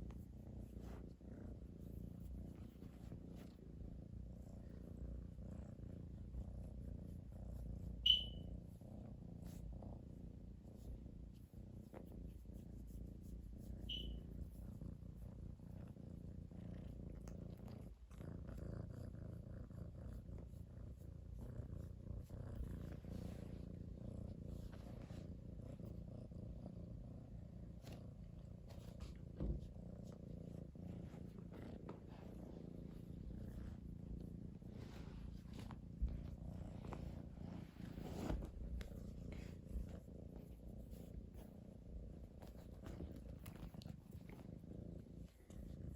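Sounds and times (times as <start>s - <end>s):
cat purring: 0.0s - 45.9s
short high squeak: 8.1s - 8.4s, 13.9s - 14.2s.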